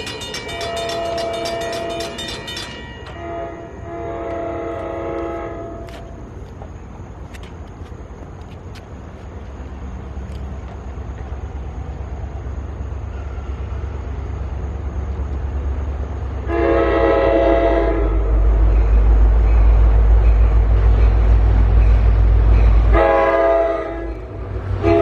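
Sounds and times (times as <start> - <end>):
locomotive rumbling: 0.0 - 25.0
train horn blast: 3.1 - 6.1, 16.4 - 18.4, 22.9 - 25.0.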